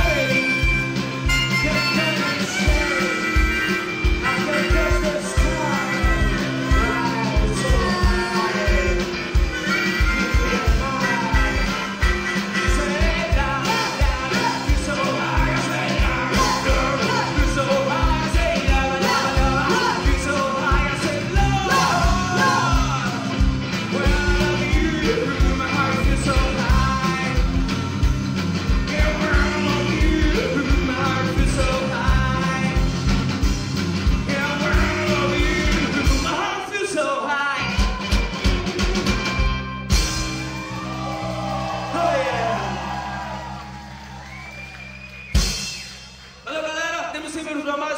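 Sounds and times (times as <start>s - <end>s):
driving drum beat: 0.0s - 36.6s, 37.6s - 46.3s
live rock band playing: 0.0s - 46.6s
person singing or shouting: 1.6s - 27.4s, 40.7s - 43.6s.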